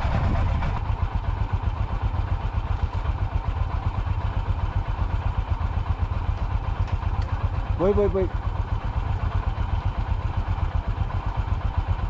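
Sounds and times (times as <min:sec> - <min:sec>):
motorcycle engine thumping: 0:06.1 - 0:07.5.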